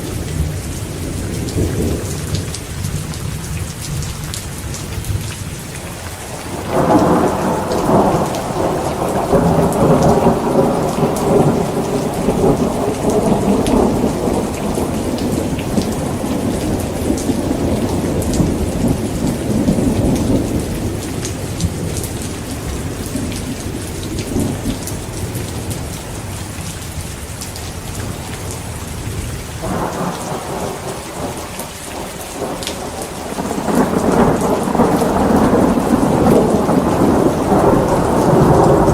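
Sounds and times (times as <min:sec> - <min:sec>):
heavy rain falling: 0:00.0 - 0:38.9
rolling thunder: 0:06.3 - 0:26.3, 0:29.0 - 0:38.9.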